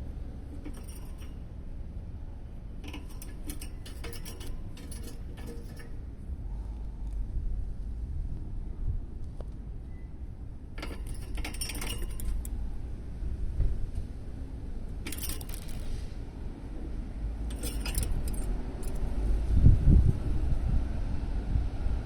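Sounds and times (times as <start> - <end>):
small metal objects jangling: 0.6 - 1.4, 2.8 - 6.0, 10.8 - 12.6, 15.1 - 16.0, 17.5 - 19.2.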